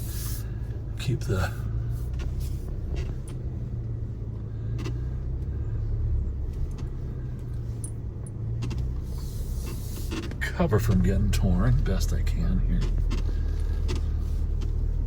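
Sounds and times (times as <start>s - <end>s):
engine low rumble: 0.0s - 15.0s
things rattling in cab: 8.6s - 15.0s.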